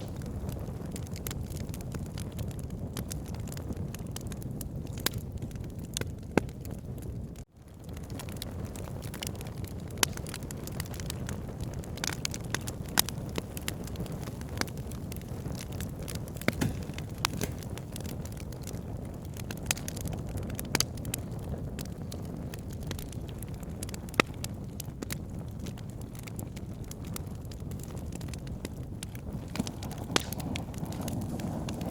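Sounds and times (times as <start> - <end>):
fire crackling and popping: 0.0 - 31.9
wood fire rushing: 7.7 - 21.2, 27.9 - 31.9.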